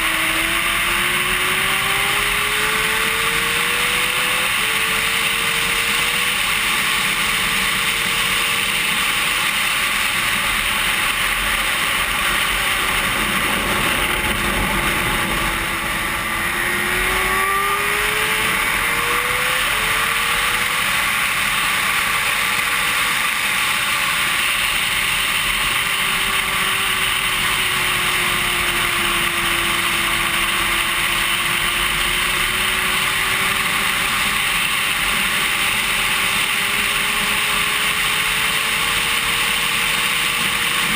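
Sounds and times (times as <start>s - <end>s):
sport bike engine revving: 0.0s - 40.9s
wind rush: 11.0s - 23.5s.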